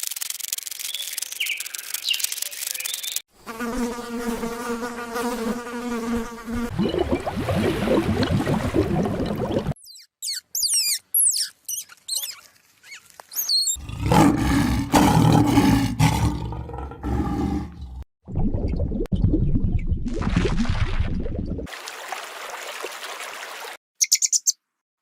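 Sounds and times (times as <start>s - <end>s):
high chirps and squeaks: 0.4s - 3.2s, 9.8s - 13.8s, 24.0s - 24.6s
dense rasping animal call: 12.1s - 18.0s
big cat roaring: 13.8s - 18.0s.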